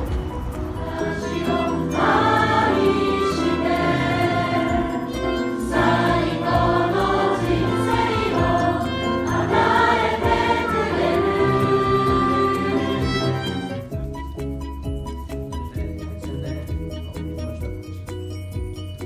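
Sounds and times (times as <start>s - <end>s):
choir singing: 0.0s - 13.9s
instrumental accompaniment: 0.0s - 19.0s.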